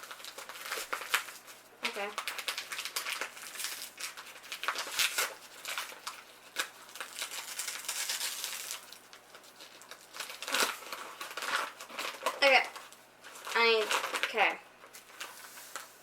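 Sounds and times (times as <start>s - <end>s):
sugar bag rustling: 0.0s - 16.0s.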